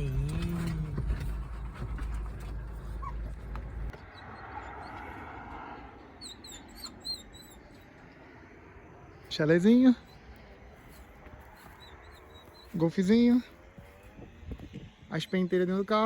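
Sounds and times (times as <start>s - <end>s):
dog whimpering: 0.0s - 5.3s, 5.9s - 8.0s
low vehicle rumble: 0.0s - 16.0s.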